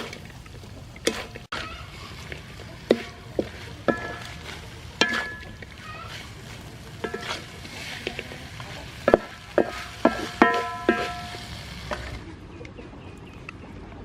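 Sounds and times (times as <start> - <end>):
food sizzling in a metal pan: 0.0 - 12.3
spatula knocking the pan: 1.0 - 12.1.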